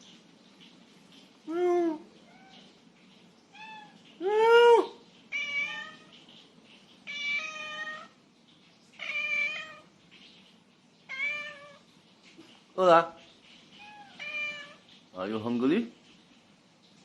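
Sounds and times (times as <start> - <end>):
cat meowing: 3.5 - 4.0, 4.8 - 6.2, 7.0 - 8.2, 9.0 - 9.9, 11.1 - 11.9, 13.8 - 14.9.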